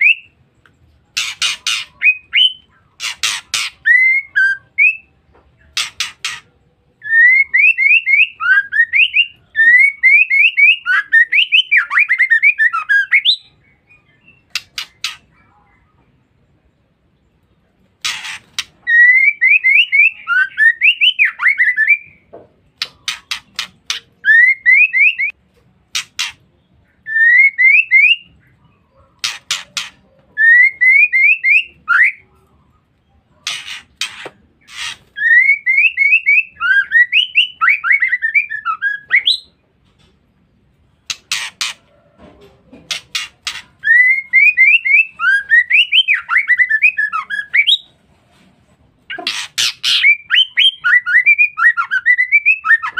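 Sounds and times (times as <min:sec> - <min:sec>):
bird rasping chatter: 0:01.1 - 0:04.3, 0:05.6 - 0:06.6, 0:14.3 - 0:15.4, 0:18.0 - 0:19.6, 0:22.8 - 0:25.3, 0:25.9 - 0:26.5, 0:29.1 - 0:31.8, 0:33.4 - 0:36.6, 0:41.0 - 0:42.0, 0:42.8 - 0:47.9, 0:49.1 - 0:51.8.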